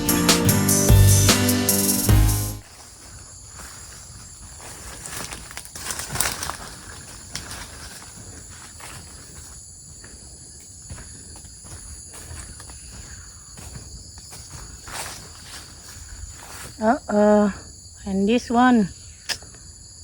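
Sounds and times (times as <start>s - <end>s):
footsteps on ground: 2.6s - 16.8s
high-pitched insect chorus: 2.6s - 20.0s
rustling: 2.7s - 9.5s.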